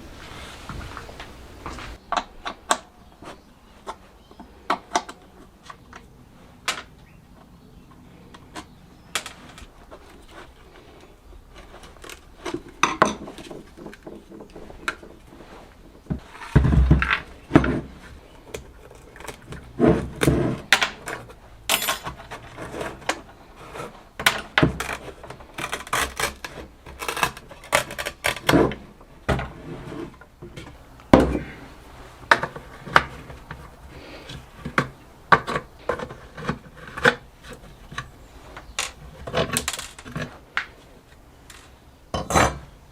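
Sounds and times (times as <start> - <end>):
metal parts and tools clinking: 20.8 - 22.8.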